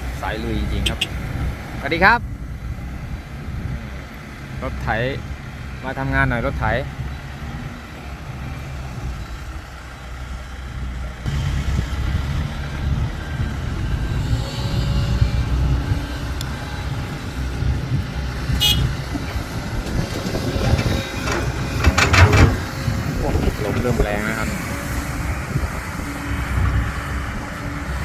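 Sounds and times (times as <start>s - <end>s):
heavy diesel engine rumble: 0.0s - 28.0s.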